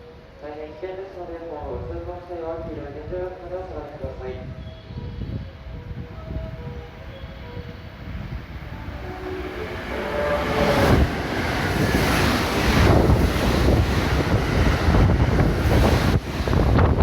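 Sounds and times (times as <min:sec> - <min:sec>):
train passing at speed: 0:06.2 - 0:17.0
melodic train horn: 0:06.4 - 0:13.2.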